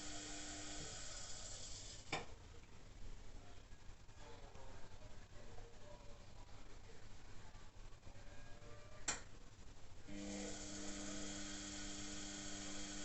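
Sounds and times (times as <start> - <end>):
washing machine hum and hiss: 0.0 - 2.2, 10.0 - 13.0.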